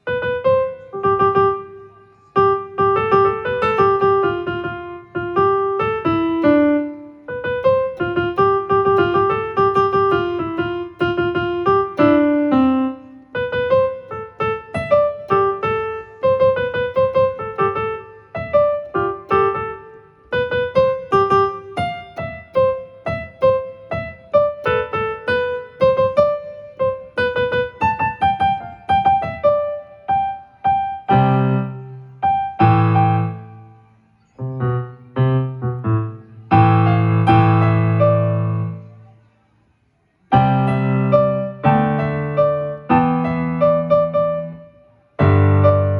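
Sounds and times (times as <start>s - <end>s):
electronic keyboard piano melody: 0.0s - 39.1s, 40.3s - 45.9s
low keyboard chords ringing: 2.4s - 33.7s.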